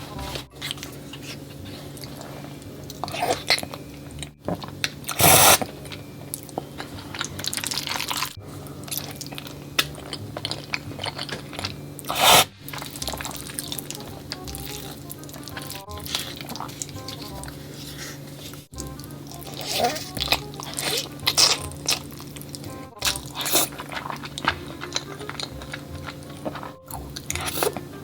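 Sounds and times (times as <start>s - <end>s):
wet chewing and smacking: 0.3s - 28.0s
loud noodle slurps: 5.1s - 5.7s, 12.1s - 12.6s.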